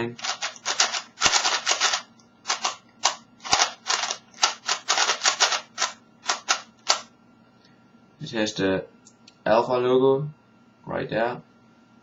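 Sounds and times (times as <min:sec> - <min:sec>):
plastic puzzle cube clacking: 0:00.2 - 0:07.0.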